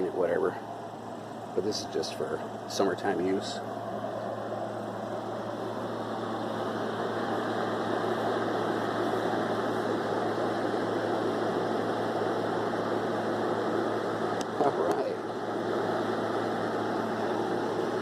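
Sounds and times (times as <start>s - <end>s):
air conditioner running: 0.0s - 18.0s.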